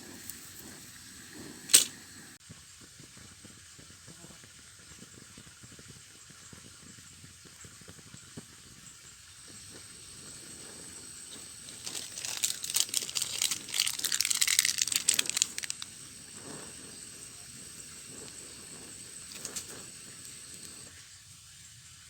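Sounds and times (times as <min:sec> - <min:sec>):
faint steady hiss: 0:00.0 - 0:22.0
packaging crinkling and rustling: 0:11.7 - 0:15.8.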